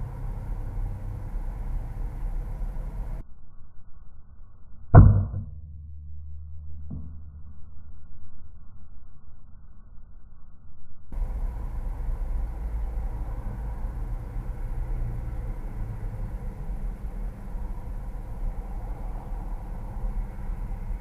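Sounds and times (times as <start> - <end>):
low rumbling background noise: 0.0 - 3.4, 4.5 - 21.0.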